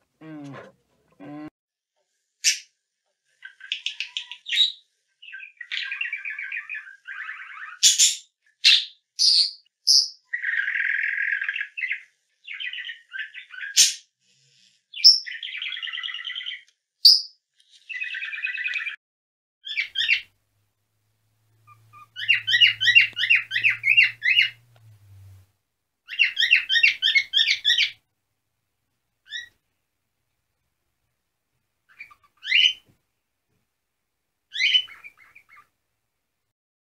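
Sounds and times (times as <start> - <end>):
budgerigar high chirps: 3.4 - 14.0, 19.6 - 20.3, 21.6 - 24.6, 26.1 - 28.0, 29.2 - 29.6, 31.9 - 32.8, 34.5 - 35.7
budgerigar chattering: 19.6 - 20.3, 21.7 - 24.6, 26.1 - 28.0, 31.9 - 32.8, 34.5 - 35.7.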